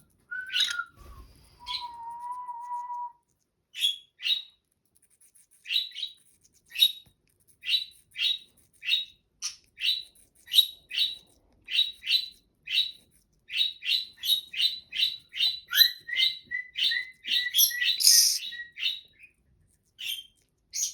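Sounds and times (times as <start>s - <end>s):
parrot chirping: 0.3s - 1.0s, 3.7s - 4.5s, 7.6s - 19.3s, 20.0s - 20.9s.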